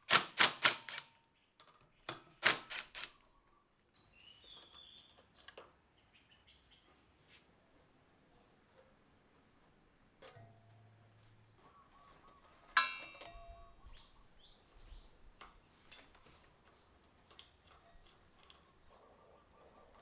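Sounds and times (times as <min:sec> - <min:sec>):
metal tools clinking: 0:12.8 - 0:13.6
loud ringing metallic clink: 0:12.8 - 0:13.8.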